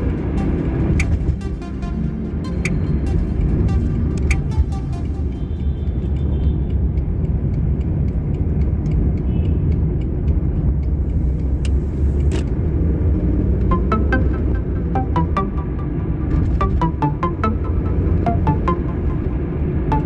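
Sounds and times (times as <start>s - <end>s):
car rumbling on road: 2.1s - 15.2s.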